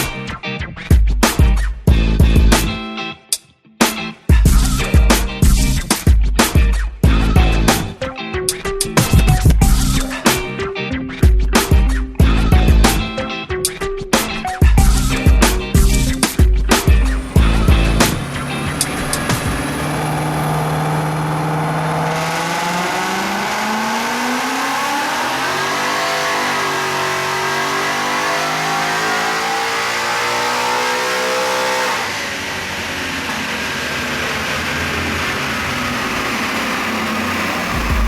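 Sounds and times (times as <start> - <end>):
supercharged engine revving: 15.0 - 38.0.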